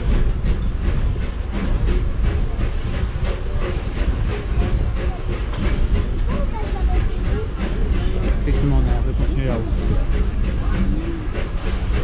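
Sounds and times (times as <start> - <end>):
locomotive hiss: 0.0 - 12.0
steam train rumbling: 0.0 - 12.0.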